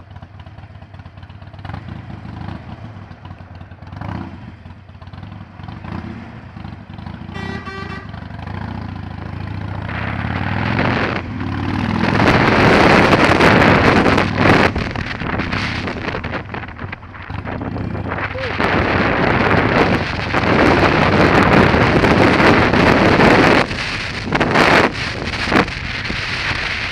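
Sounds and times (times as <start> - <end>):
motorcycle engine revving: 0.0 - 26.9
horn toot: 7.3 - 8.3
wind noise on microphone: 8.9 - 26.9.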